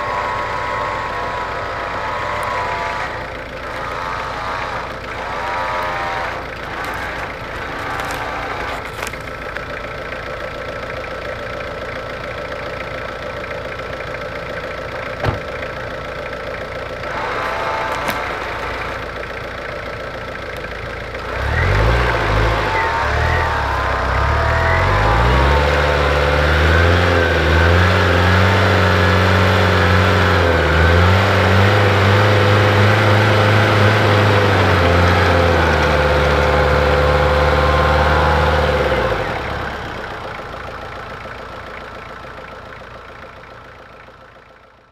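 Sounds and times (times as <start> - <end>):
deep engine revving: 0.0 - 10.5, 16.8 - 41.4
vehicle engine running: 0.0 - 44.9.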